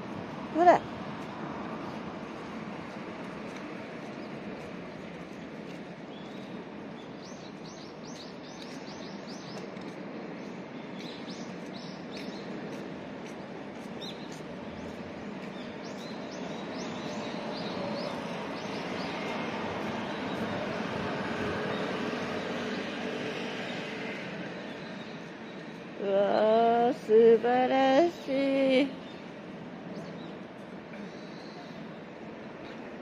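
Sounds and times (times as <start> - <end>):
city background hum: 0.0 - 33.0
small birds chirping: 4.0 - 20.5.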